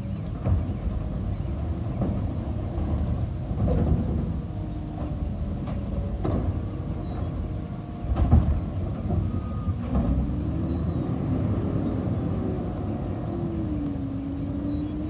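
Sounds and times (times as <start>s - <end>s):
garbage truck engine rumbling: 0.0s - 15.0s
knocks and clanks: 0.2s - 10.8s.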